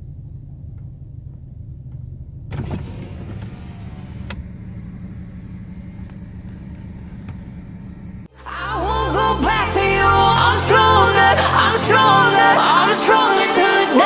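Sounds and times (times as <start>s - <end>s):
car engine idling: 0.0s - 8.3s
click: 0.7s - 8.2s.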